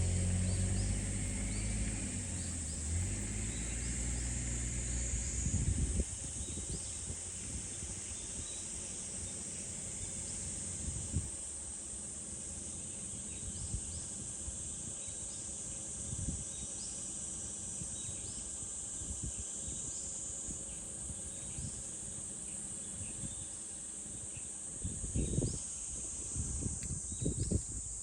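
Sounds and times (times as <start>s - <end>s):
wind rumble on microphone: 0.0s - 8.6s, 10.7s - 11.4s, 13.3s - 14.6s, 16.0s - 16.7s, 19.0s - 21.8s, 22.9s - 23.5s, 24.7s - 28.0s
cicadas droning: 0.0s - 28.0s.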